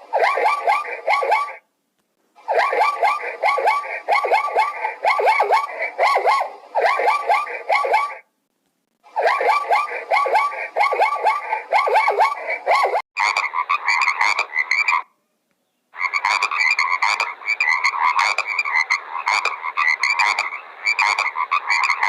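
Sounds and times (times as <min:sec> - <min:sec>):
frogs croaking in chorus: 0:13.2 - 0:15.1, 0:15.9 - 0:22.0.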